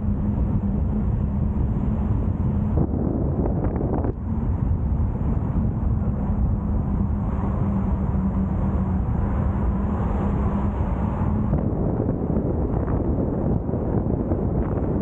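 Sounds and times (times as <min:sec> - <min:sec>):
car engine drone: 0:00.0 - 0:15.0
road and wind noise: 0:00.0 - 0:15.0.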